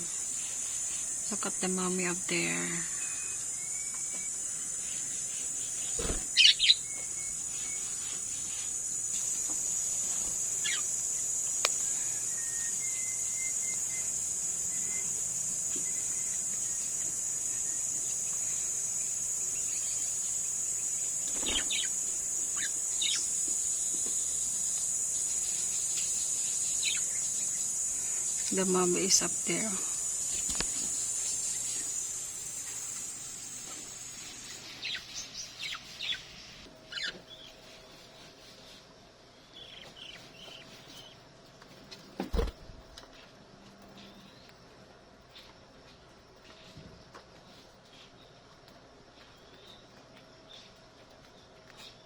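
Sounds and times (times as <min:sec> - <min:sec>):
steady high-pitched hum: 0:00.0 - 0:41.6
budgerigars chirping: 0:04.1 - 0:08.1, 0:10.6 - 0:11.0, 0:19.4 - 0:24.6, 0:25.3 - 0:29.7, 0:34.7 - 0:37.2.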